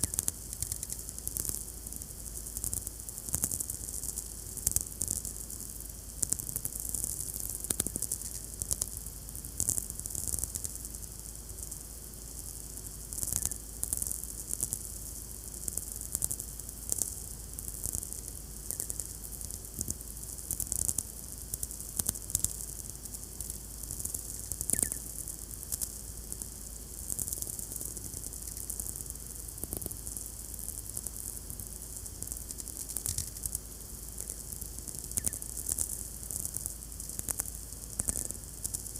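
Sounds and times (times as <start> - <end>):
steady radio hiss: 0.0 - 38.9.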